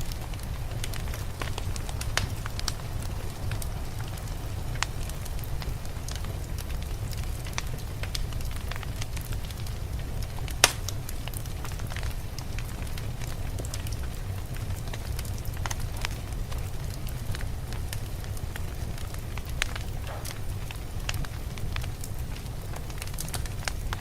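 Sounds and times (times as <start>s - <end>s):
fire popping: 0.0s - 24.0s
wood fire crackling: 0.0s - 24.0s.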